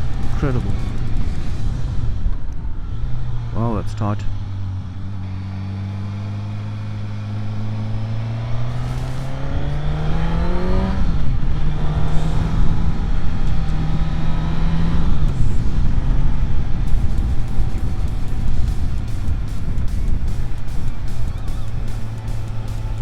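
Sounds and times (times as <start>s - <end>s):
motorcycle engine accelerating: 0.0s - 23.0s
wind rush on microphone: 9.1s - 23.0s.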